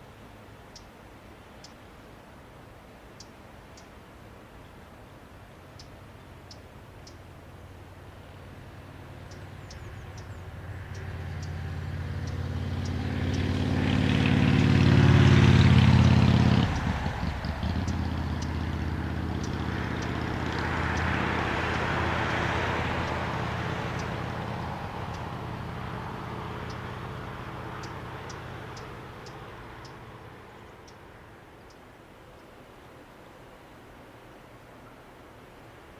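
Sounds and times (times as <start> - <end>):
electric train passing: 10.1 - 30.4.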